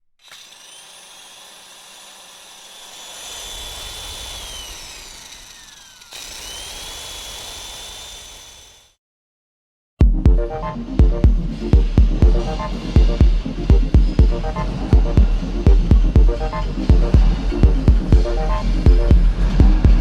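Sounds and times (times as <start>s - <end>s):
low rumble: 10.1s - 20.0s
high-pitched machine whine: 10.6s - 20.0s.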